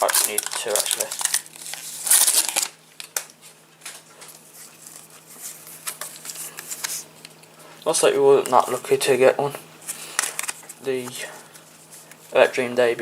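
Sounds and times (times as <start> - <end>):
foil wrapper crinkling: 0.0 - 7.1
cards rustling and ticking: 0.0 - 7.4, 9.9 - 12.7.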